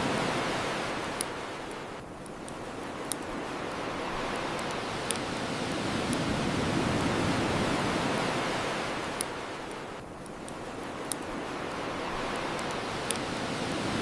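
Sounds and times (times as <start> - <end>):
ocean surf washing on shore: 0.0 - 14.0
bonfire crackling and popping: 0.1 - 14.0.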